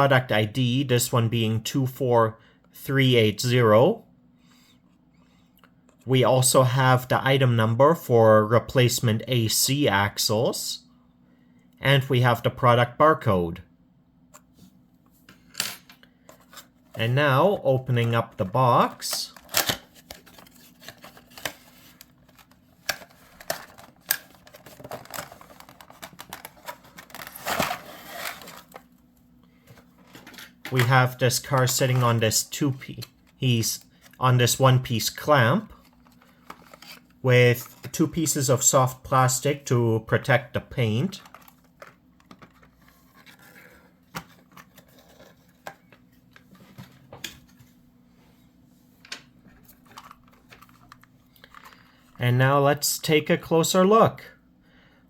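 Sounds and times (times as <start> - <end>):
faint steady hum: 0.0 - 55.0
plastic packaging rustling: 18.9 - 29.1, 35.7 - 38.0, 41.1 - 46.1
plastic clicks and rustles: 19.3 - 27.4, 49.1 - 51.8.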